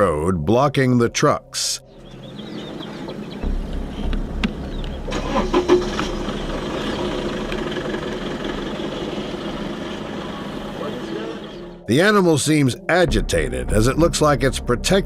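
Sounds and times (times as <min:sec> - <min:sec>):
truck engine idling: 0:02.0 - 0:11.8
sharp clicks and knocks: 0:03.7 - 0:05.0.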